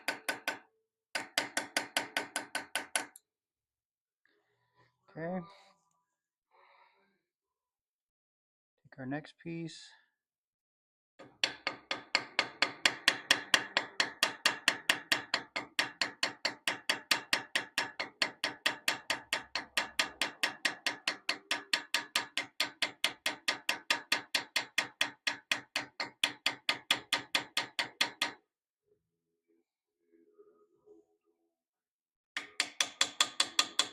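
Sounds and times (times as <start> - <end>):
hammer tapping metal: 1.2 - 3.2, 11.2 - 28.4, 32.4 - 33.9.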